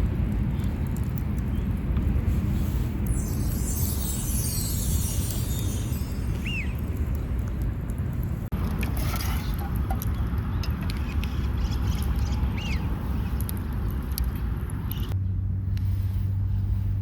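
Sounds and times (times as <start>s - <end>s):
wind rumble on microphone: 0.0s - 17.0s
bird chirping: 3.1s - 6.9s.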